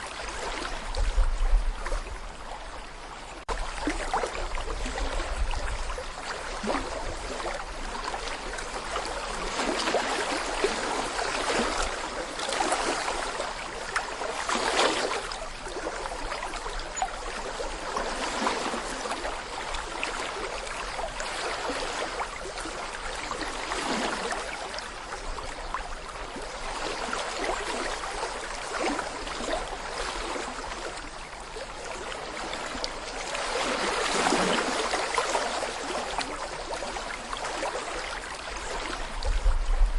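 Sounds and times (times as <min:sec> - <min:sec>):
stream babbling over stones: 0:26.5 - 0:39.2.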